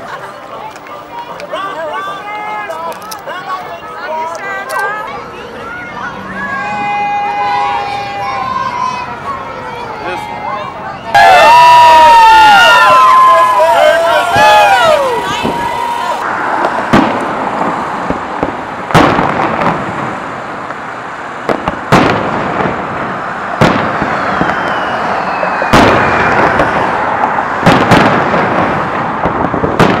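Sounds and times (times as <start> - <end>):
falling firework whistle: 11.2 - 16.2, 23.6 - 28.2
fireworks bangs: 11.2 - 30.0.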